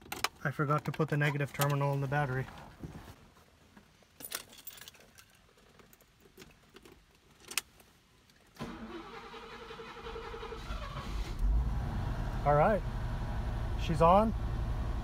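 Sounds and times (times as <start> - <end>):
car engine cranking and starting: 8.6 - 15.0.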